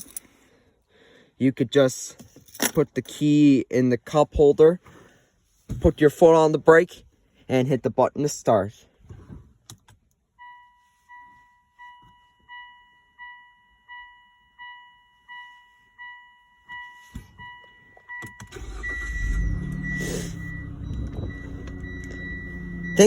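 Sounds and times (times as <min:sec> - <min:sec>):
car dashboard chime beeping: 0:10.3 - 0:23.0
car engine cranking and idling: 0:17.0 - 0:23.0
clicks: 0:20.8 - 0:22.5.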